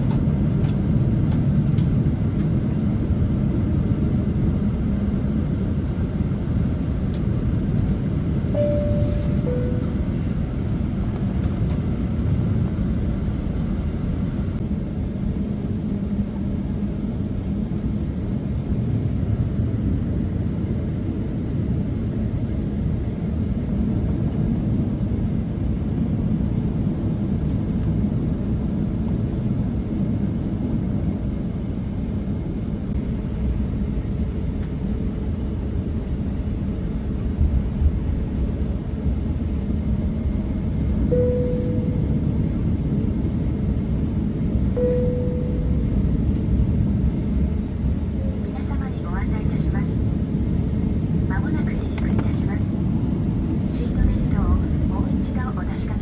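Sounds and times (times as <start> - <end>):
jet engines rumbling in cabin: 0.0 - 56.0
faint steady hum: 8.5 - 10.4, 44.7 - 47.2.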